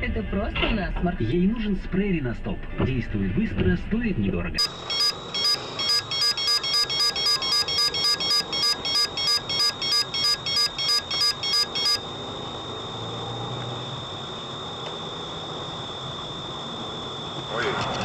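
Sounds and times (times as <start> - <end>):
rapid electronic beeping: 4.6 - 18.0
steady high whine: 4.6 - 18.0.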